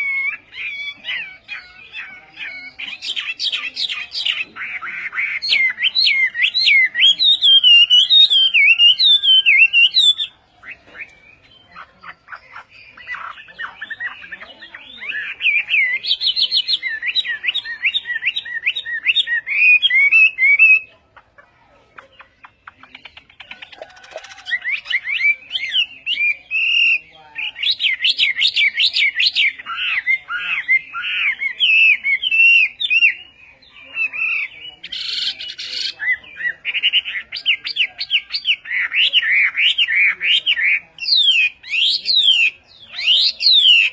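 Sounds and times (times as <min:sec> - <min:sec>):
bird singing whistled phrases: 0:02.4 - 0:20.9.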